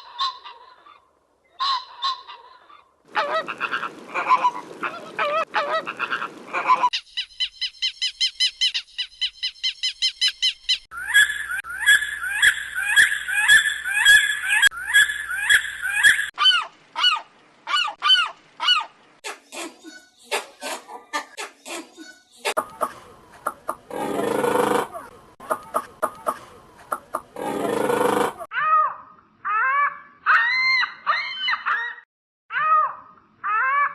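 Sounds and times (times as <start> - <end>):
loud repeated bird calls: 3.2 - 19.0, 22.6 - 32.0
birds honking: 10.9 - 16.4.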